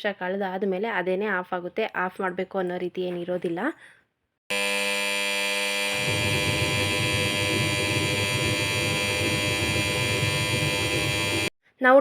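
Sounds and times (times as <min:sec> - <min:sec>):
lower rough buzz: 0:04.5 - 0:11.5
washing machine buzzer: 0:04.5 - 0:11.5.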